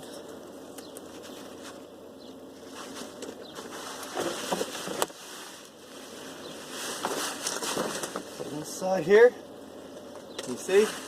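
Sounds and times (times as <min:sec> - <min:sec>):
mesh bags rustling: 0:02.6 - 0:08.8.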